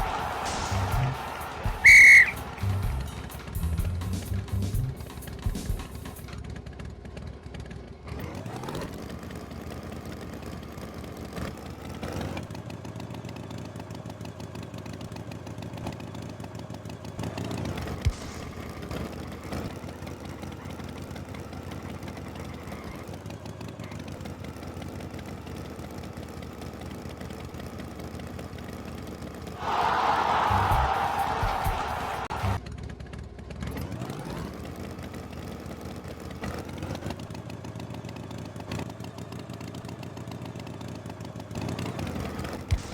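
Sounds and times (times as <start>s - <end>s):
tractor engine idling: 0.0s - 7.9s.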